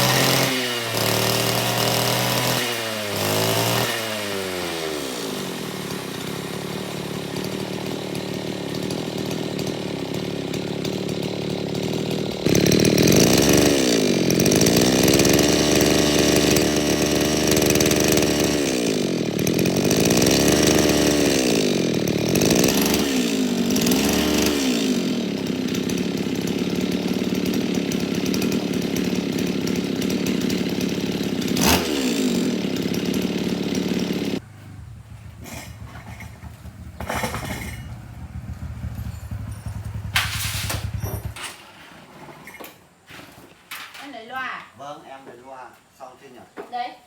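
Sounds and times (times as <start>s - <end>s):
motor running loud: 4.7s - 34.4s
light knocks and clatter: 35.3s - 38.2s.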